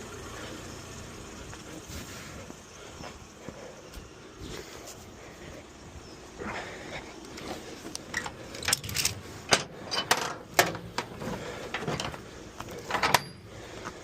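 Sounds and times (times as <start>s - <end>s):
metallic clicks and knocks: 7.9s - 13.5s.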